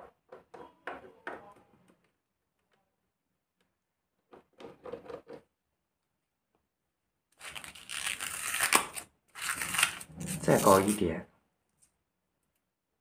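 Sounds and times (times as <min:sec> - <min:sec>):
tape ripping off a roll: 0:07.3 - 0:11.0.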